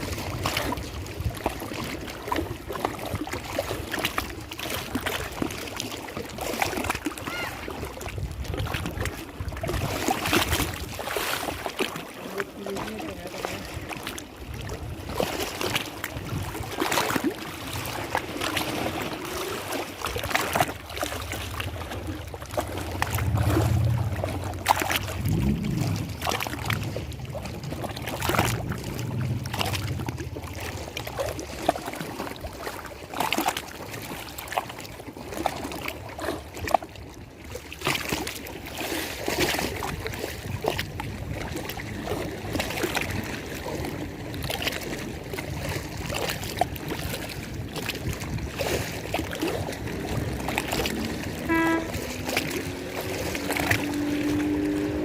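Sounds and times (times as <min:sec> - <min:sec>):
water lapping and splashing: 0:00.0 - 0:55.0
low hum: 0:21.4 - 0:31.2.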